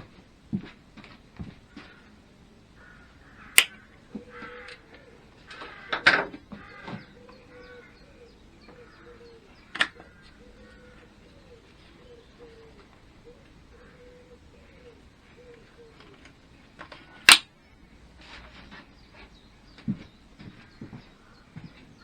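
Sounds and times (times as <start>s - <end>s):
faint birds calling: 1.7s - 18.0s.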